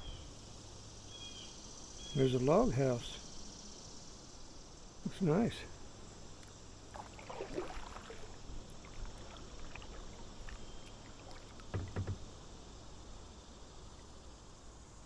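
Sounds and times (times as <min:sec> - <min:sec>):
kayak paddle dipping and dripping: 0:05.9 - 0:12.6
thuds: 0:07.0 - 0:12.4.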